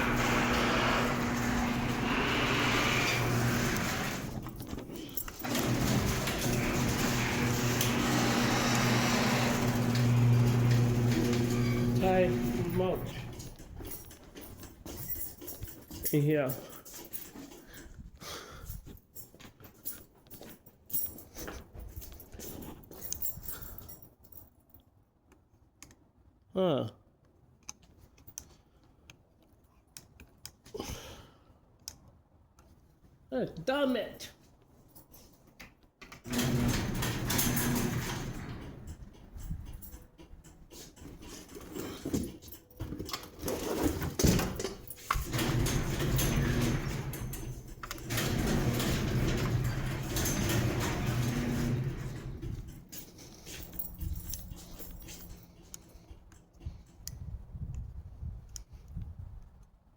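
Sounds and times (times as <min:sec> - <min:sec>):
garage door opener motor humming: 0:00.0 - 0:04.7, 0:05.3 - 0:13.8, 0:36.2 - 0:40.6, 0:43.3 - 0:56.9
garage door rattling: 0:00.0 - 0:17.8, 0:36.0 - 0:57.0.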